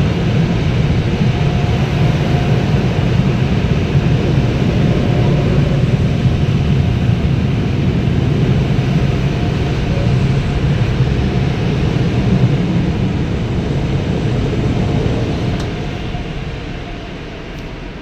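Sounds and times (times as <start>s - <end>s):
car wash blowers rushing air: 0.0s - 18.0s.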